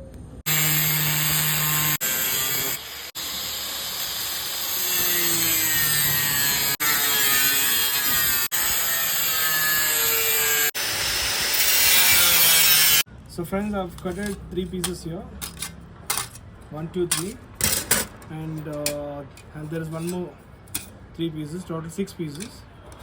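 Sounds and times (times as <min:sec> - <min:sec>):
power tool cutting sheet metal: 0:00.5 - 0:13.0.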